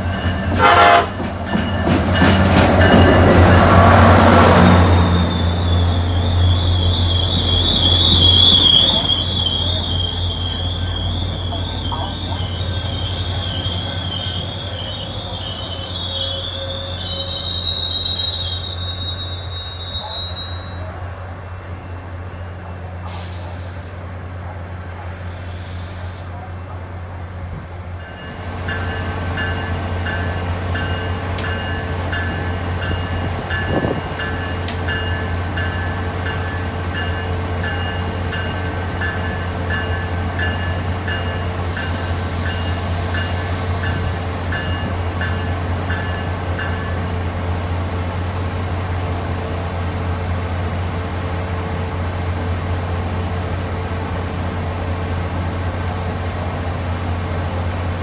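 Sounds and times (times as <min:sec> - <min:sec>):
train bell ringing: 0:00.0 - 0:03.9, 0:08.9 - 0:20.9, 0:28.0 - 0:47.1
train low hum: 0:00.0 - 0:58.0
air hiss: 0:25.1 - 0:26.4, 0:41.5 - 0:44.5.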